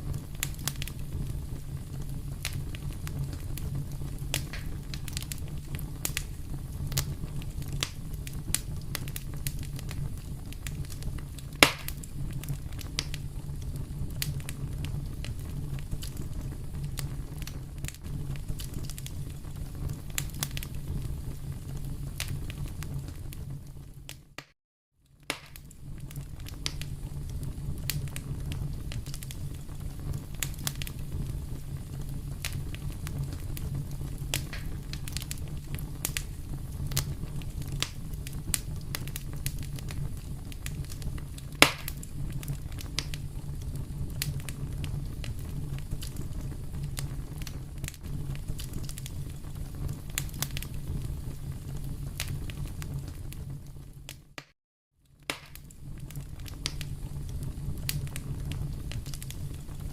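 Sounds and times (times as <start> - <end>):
loud pop of fire: 0.0 - 24.6, 25.2 - 54.6, 55.2 - 59.9
wood fire crackling: 0.0 - 59.9.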